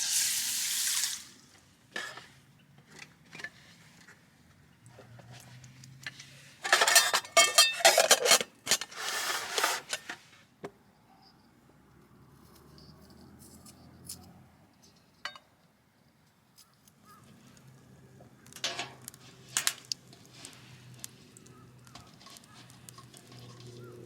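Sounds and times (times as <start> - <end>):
metal cookware clattering: 2.0 - 2.4, 6.6 - 10.2, 18.6 - 20.2, 21.9 - 24.0.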